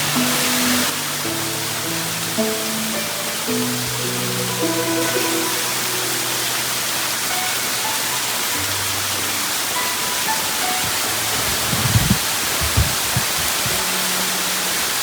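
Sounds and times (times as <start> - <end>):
soft background music: 0.0 - 15.0
waterfall rushing: 0.0 - 15.0
low thumps: 10.8 - 13.8.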